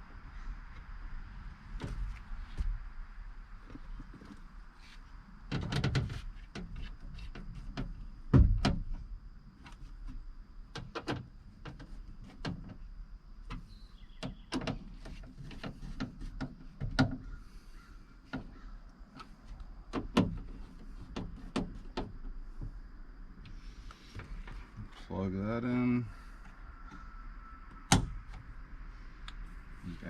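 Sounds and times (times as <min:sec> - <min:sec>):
heavy thump: 0:08.3 - 0:08.9.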